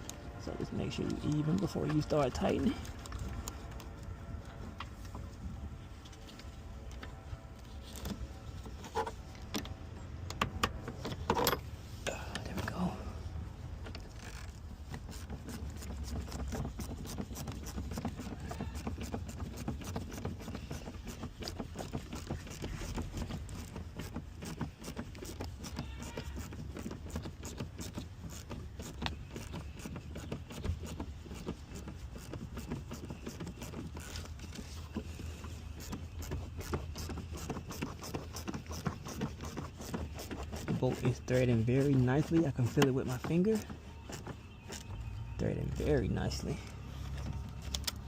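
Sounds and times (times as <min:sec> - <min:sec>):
clicks and rattles of hand work: 0:13.8 - 0:48.0.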